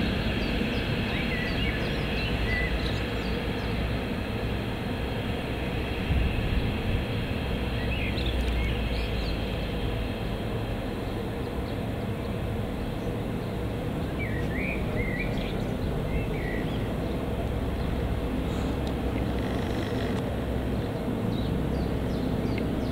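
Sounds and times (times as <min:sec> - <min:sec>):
low rumble of rail traffic: 0:00.0 - 0:22.9
bird chirps: 0:14.1 - 0:17.2.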